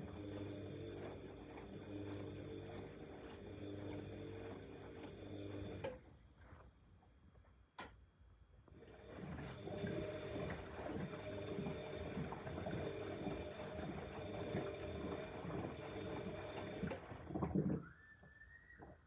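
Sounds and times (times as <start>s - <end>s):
washing machine tumbling: 8.8s - 18.0s.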